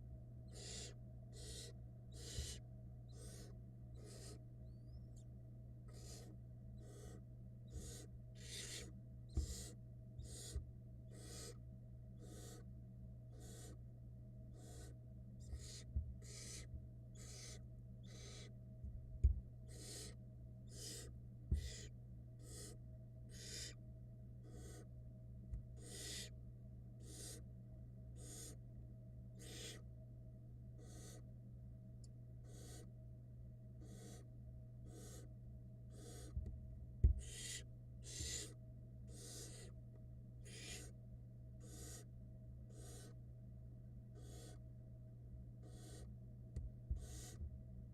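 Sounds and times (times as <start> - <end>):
steady low hum: 0.0 - 47.9
owl nestlings hissing calls: 0.5 - 5.2, 5.9 - 11.6, 12.2 - 12.7, 13.3 - 13.8, 14.5 - 18.6, 19.7 - 23.8, 24.4 - 24.9, 25.8 - 26.4, 27.0 - 27.4, 28.2 - 28.6, 29.4 - 29.8, 30.8 - 31.2, 32.4 - 32.9, 33.8 - 35.3, 35.9 - 36.4, 37.2 - 39.8, 40.4 - 41.0, 41.6 - 42.1, 42.7 - 43.2, 44.2 - 44.6, 45.6 - 46.1, 47.0 - 47.4
dull thumps: 18.8 - 19.5, 36.4 - 37.2.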